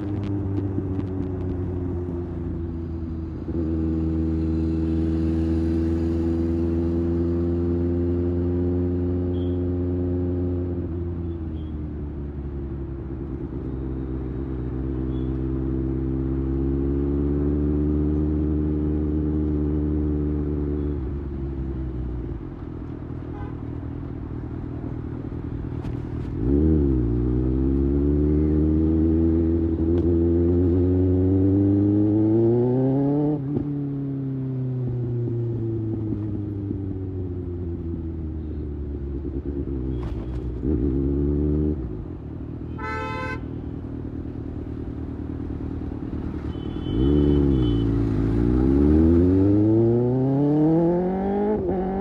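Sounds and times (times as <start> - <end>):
motorcycle engine revving: 25.9 - 42.1, 44.0 - 52.0.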